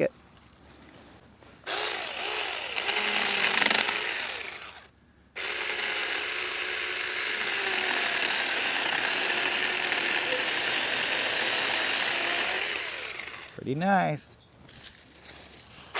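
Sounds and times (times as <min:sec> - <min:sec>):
electric chainsaw cutting wood: 0:01.7 - 0:13.6.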